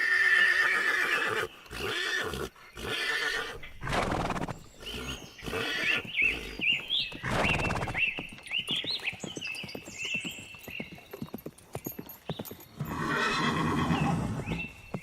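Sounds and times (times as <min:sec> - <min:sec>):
horse snorting: 0:00.5 - 0:08.1
hooves clopping on hard ground: 0:04.1 - 0:15.0.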